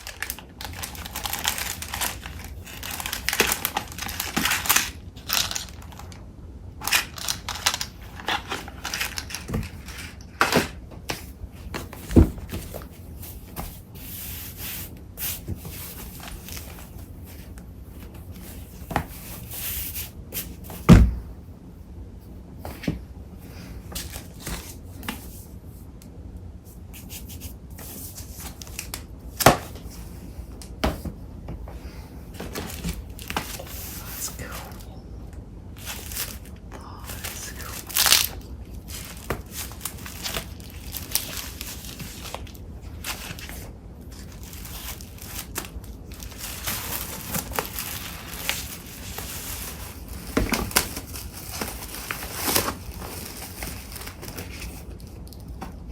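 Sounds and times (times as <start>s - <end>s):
paper rustling: 0.0s - 6.1s, 6.8s - 21.0s, 35.7s - 55.7s.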